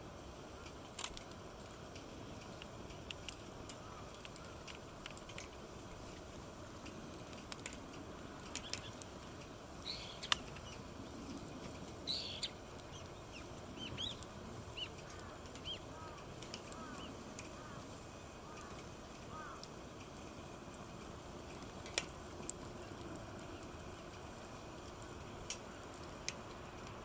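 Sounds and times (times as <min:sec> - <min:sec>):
campfire crackling and popping: 0:00.0 - 0:27.0
low hiss: 0:00.0 - 0:27.0
birds chirping: 0:09.8 - 0:10.9, 0:12.0 - 0:19.7.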